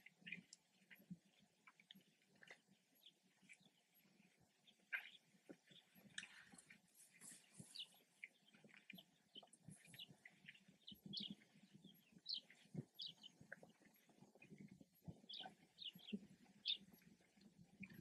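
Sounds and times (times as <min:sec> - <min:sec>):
faint birds chirping: 0:00.0 - 0:18.0
soft low knocks and shuffles: 0:05.5 - 0:08.2.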